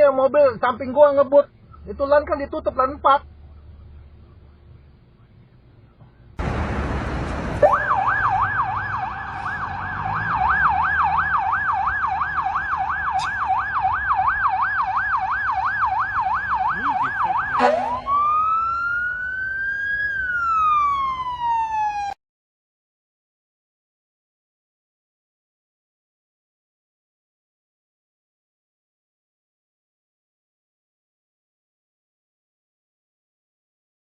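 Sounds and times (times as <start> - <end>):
emergency vehicle siren: 6.4 - 22.2.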